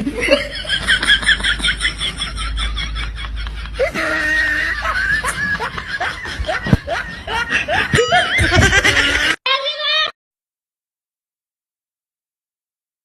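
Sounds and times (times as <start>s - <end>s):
person giggling: 0.0s - 9.4s.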